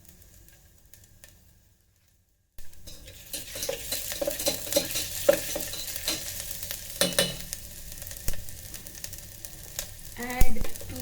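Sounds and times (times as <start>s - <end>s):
garlic and ginger sizzling in oil: 0.0s - 11.0s
utensil scraping a pot: 2.8s - 7.5s.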